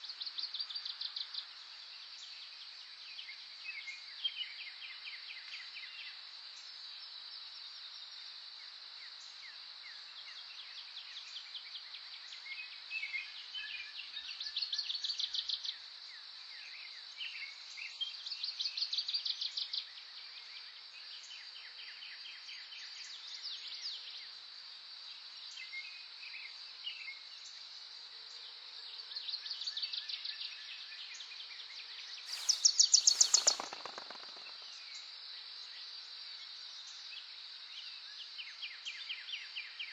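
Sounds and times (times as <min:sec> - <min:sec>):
songbirds trilling: 0:32.3 - 0:34.8.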